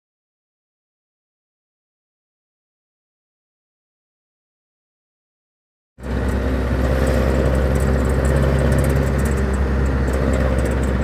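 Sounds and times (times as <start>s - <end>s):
vehicle engine running: 6.0s - 11.0s.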